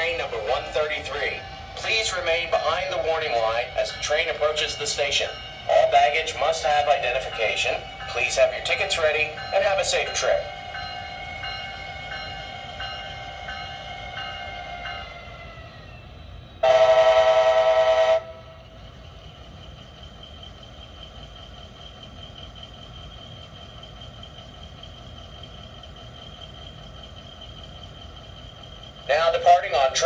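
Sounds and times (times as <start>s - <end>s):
train horn blast: 16.6s - 18.6s.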